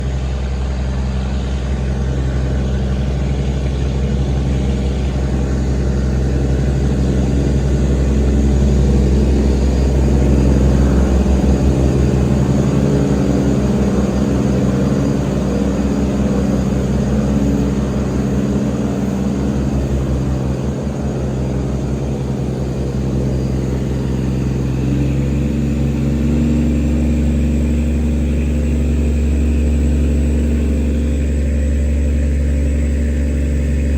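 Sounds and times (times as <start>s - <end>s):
motorboat engine droning: 0.0s - 33.9s.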